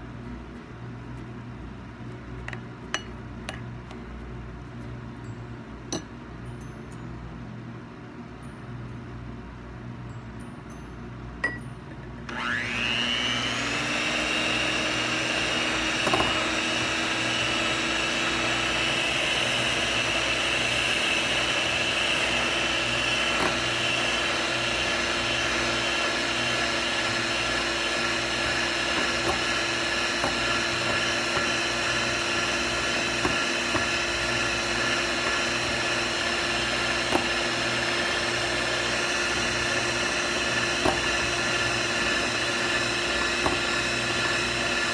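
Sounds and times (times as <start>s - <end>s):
electric whisk motor whine: 12.2s - 44.9s.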